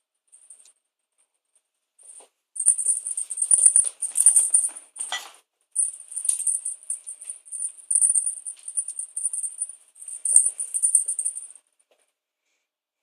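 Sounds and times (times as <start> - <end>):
cat toy jingling: 2.6 - 5.2, 5.8 - 11.5.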